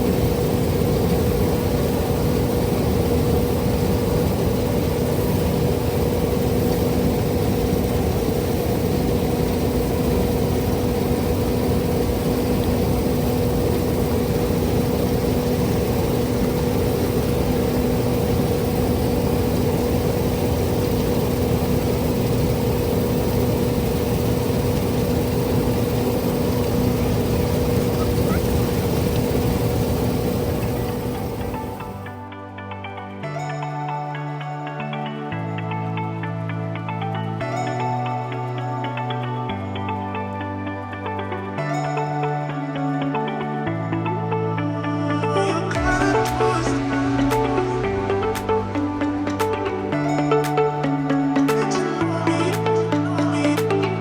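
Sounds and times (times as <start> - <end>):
combine harvester running: 0.0 - 32.1, 45.7 - 50.5.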